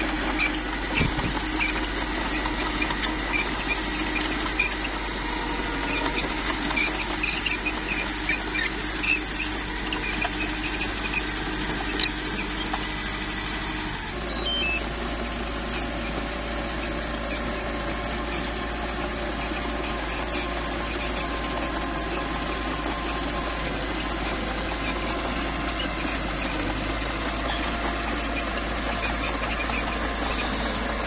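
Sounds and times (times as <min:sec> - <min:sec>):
bulldozer diesel engine running: 0:00.0 - 0:31.0
steel tracks squeaking: 0:13.7 - 0:31.0.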